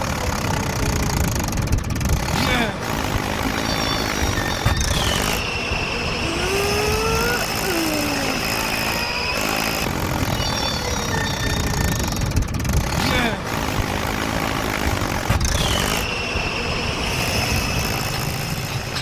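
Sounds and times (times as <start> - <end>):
small engine running: 0.0 - 19.0
rising and falling pitch glides: 3.5 - 9.4.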